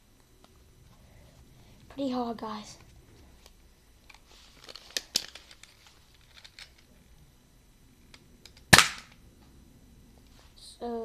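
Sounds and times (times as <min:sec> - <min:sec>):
toy dart pistol shot: 0:08.7 - 0:09.2.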